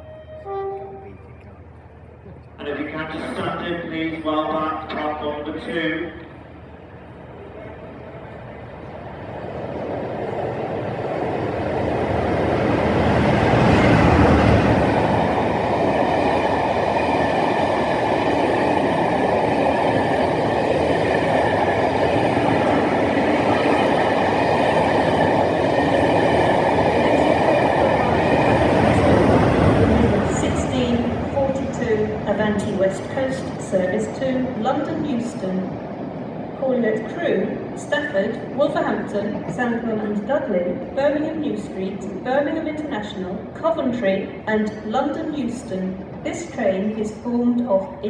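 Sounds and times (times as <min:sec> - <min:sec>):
train wheels rumbling on rails: 0:06.2 - 0:41.0.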